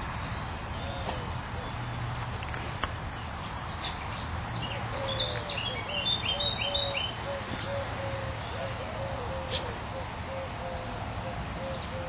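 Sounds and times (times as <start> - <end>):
songbird high chirps: 3.2 - 8.7.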